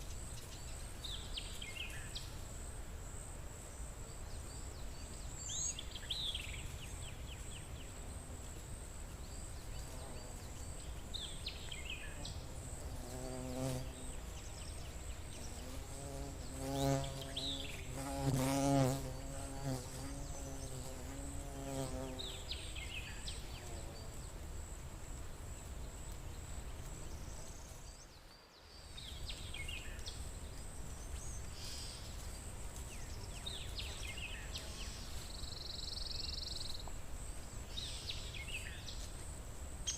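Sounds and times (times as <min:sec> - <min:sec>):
flying insect wings buzzing: 0:11.8 - 0:24.8.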